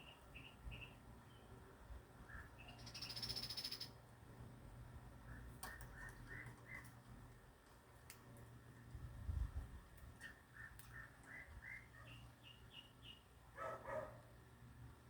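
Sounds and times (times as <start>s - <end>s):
birds chirping: 2.2s - 4.0s, 10.2s - 13.3s
bird trill: 2.3s - 4.0s.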